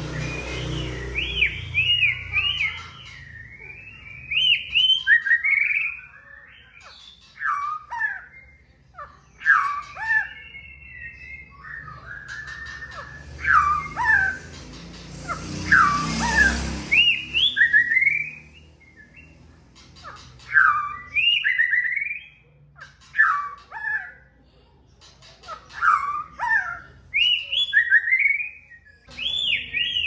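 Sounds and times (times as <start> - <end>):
songbird singing whistles and clicks: 27.2 - 30.0.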